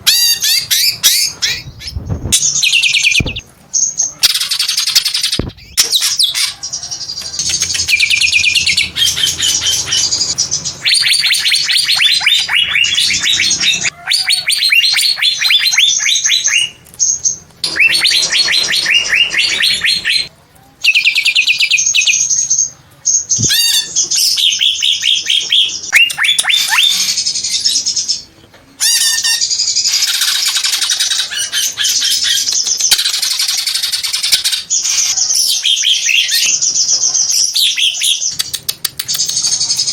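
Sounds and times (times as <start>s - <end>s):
bird singing rapid high notes: 14.5s - 20.3s.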